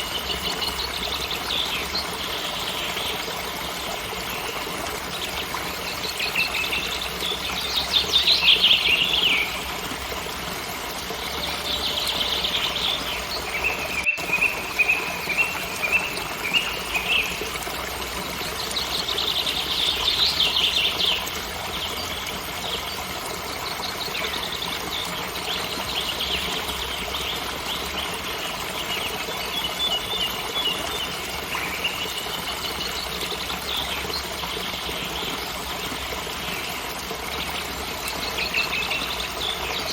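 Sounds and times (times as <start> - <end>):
waterfall rushing: 0.0 - 27.9
songbirds singing: 0.0 - 39.9.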